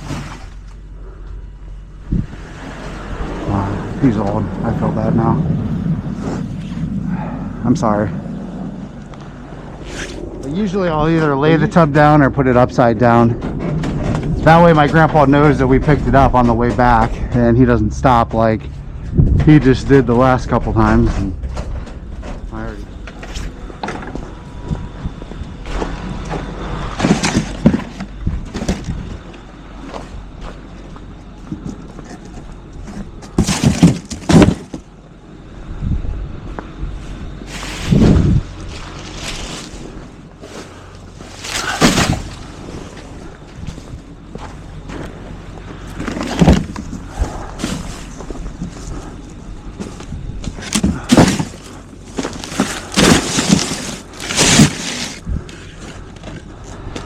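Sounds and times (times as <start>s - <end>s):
garbage truck engine rumbling: 0.0s - 57.0s
knocks and rattles: 10.7s - 30.0s, 31.4s - 35.0s, 49.8s - 55.2s
sharp clunks and knocks: 13.0s - 24.8s.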